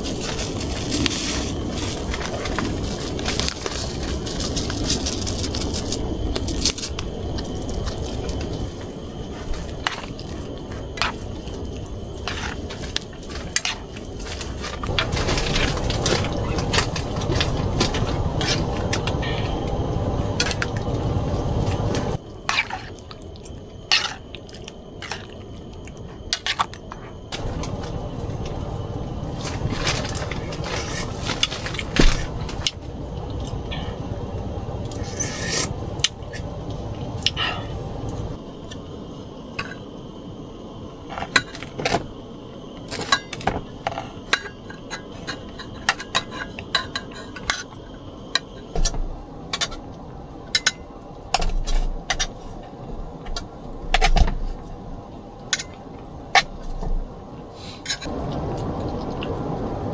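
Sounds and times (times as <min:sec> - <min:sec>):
hard objects clinking and scraping: 0:00.0 - 0:19.6, 0:29.4 - 0:32.8
steady hiss: 0:00.0 - 0:59.9.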